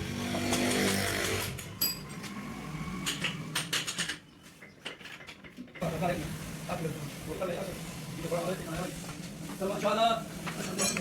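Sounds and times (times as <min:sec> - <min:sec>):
metal tools clinking: 0:10.6 - 0:11.0.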